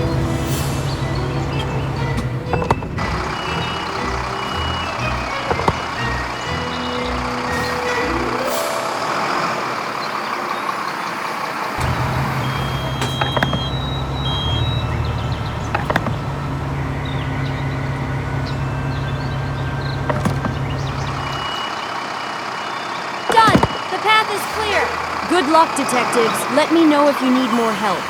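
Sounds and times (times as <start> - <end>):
rising jingle: 0.0 - 14.0, 23.4 - 28.0
truck engine running: 0.0 - 28.0.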